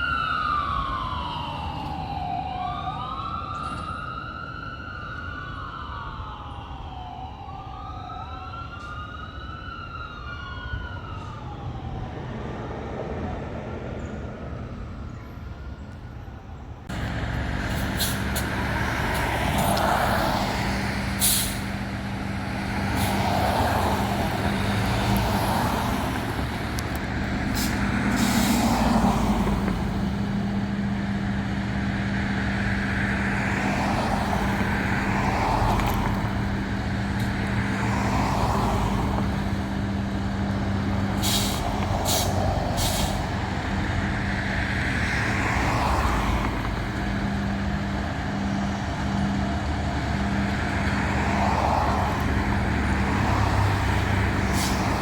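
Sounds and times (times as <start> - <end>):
wailing siren: 0.0 - 13.8, 14.4 - 55.0
diesel engine running: 16.9 - 45.5
air brake hisses: 21.2 - 21.7, 27.5 - 28.7, 41.2 - 43.3, 54.5 - 54.9.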